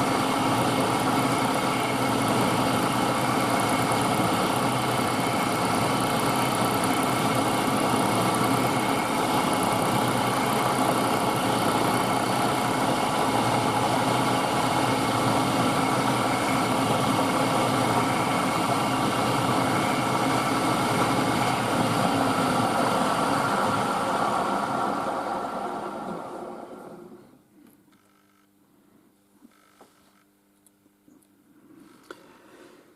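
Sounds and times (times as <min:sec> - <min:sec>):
milling machine cutting metal: 0:00.0 - 0:24.6.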